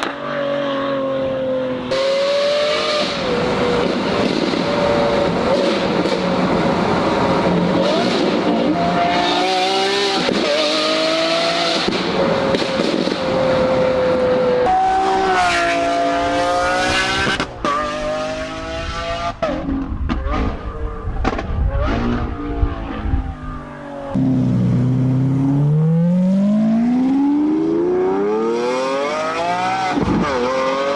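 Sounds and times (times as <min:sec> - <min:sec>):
car engine revving: 0:01.9 - 0:19.7, 0:24.1 - 0:30.9.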